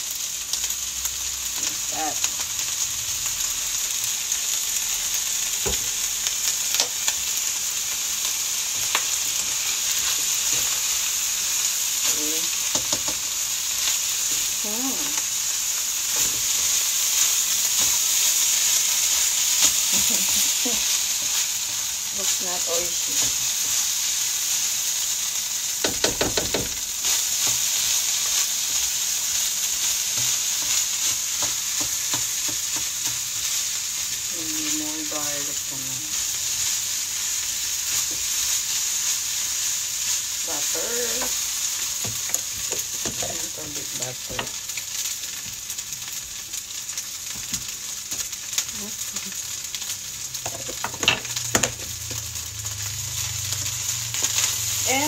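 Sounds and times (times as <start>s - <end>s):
rice sizzling in a wok: 0.0s - 55.0s
spatula scraping and tapping pan: 12.7s - 13.2s, 30.1s - 33.3s, 42.0s - 43.6s, 50.4s - 52.2s.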